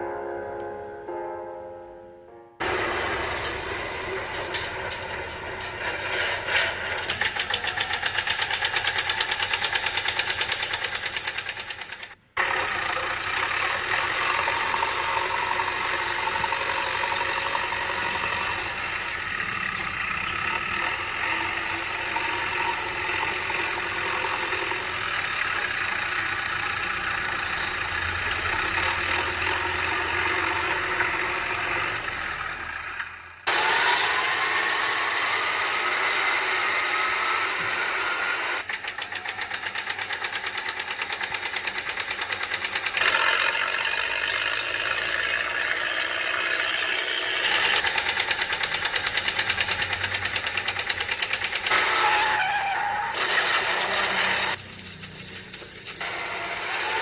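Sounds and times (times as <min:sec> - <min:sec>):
engine knocking: 0:02.6 - 0:33.4, 0:38.6 - 0:52.4
engine running steadily: 0:02.6 - 0:52.4.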